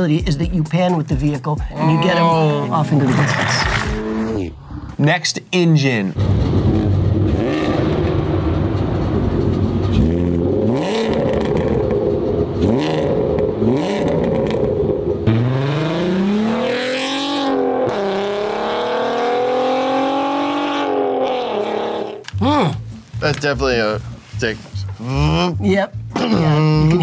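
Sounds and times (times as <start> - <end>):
car accelerating away: 6.2 - 22.2.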